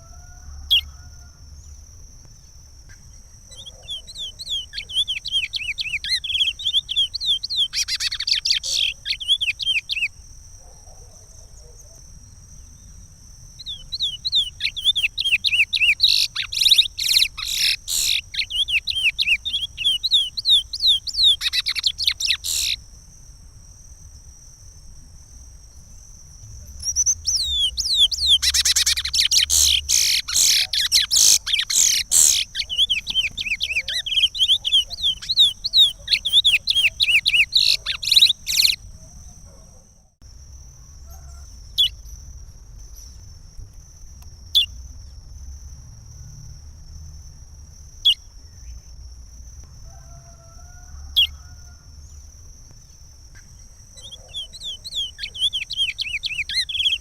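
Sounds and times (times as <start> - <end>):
finch singing rapid warbling: 13.7 - 22.8, 26.8 - 38.8, 54.1 - 57.0.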